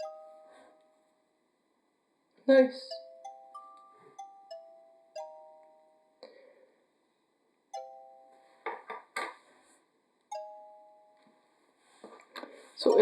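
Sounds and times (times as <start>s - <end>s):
soft chime-like music: 0.0s - 1.3s, 2.9s - 6.4s, 7.8s - 8.6s, 10.3s - 11.6s.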